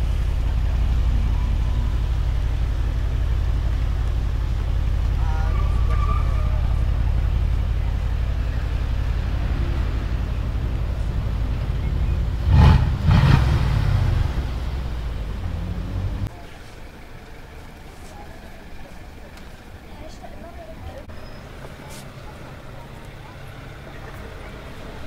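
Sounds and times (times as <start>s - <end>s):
engine revving blips: 0.0s - 16.3s
car engine rumbling: 0.0s - 25.0s.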